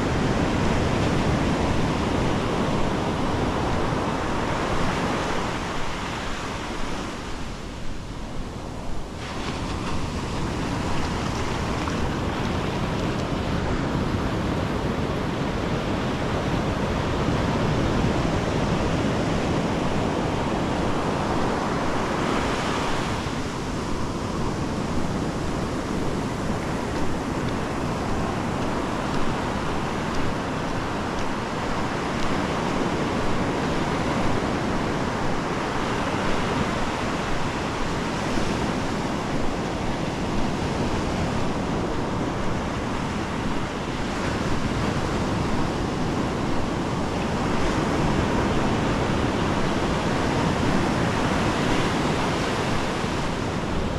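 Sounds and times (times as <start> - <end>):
ocean surf on beach: 0.0 - 53.9
wave breaking: 9.2 - 13.4.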